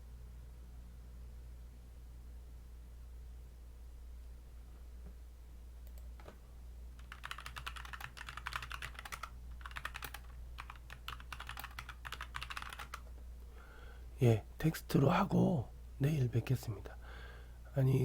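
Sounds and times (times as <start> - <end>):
steady low hum: 0.0 - 18.0
typing on computer keyboard: 7.0 - 13.1.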